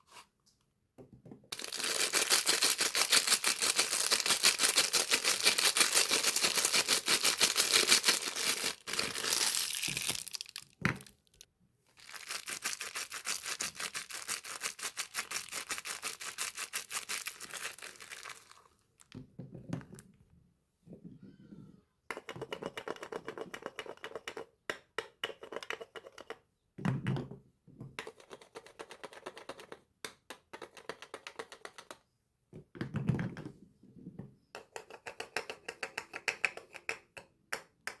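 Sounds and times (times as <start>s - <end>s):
packaging crinkling and tearing: 1.6s - 11.4s, 12.0s - 19.1s.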